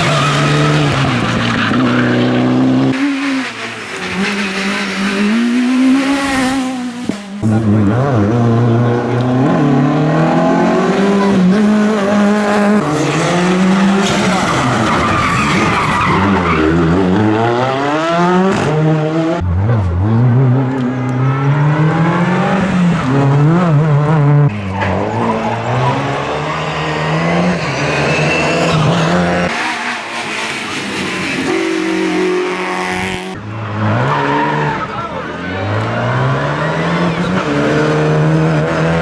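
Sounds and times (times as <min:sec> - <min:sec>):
rally car engine revving: 0:00.0 - 0:39.0
tyres skidding and squealing: 0:00.0 - 0:39.0.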